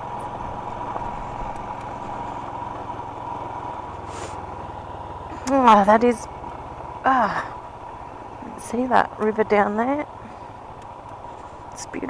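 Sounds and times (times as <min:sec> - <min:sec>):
motorcycle engine running: 0:00.0 - 0:12.0
brief hiss: 0:04.1 - 0:04.4.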